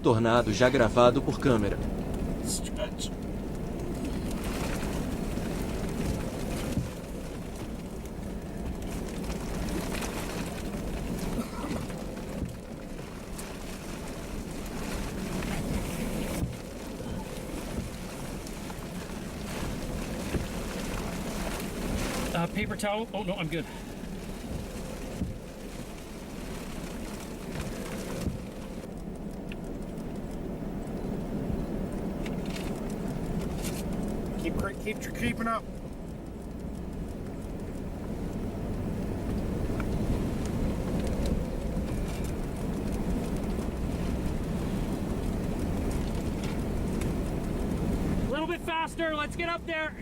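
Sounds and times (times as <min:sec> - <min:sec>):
car interior rumble: 0:00.0 - 0:50.0
storm wind and rain: 0:00.0 - 0:50.0.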